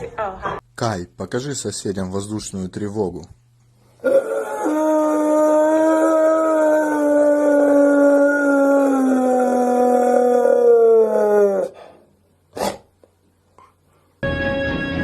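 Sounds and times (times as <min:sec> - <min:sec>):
dog howling: 0:04.0 - 0:11.8
music: 0:14.2 - 0:15.0.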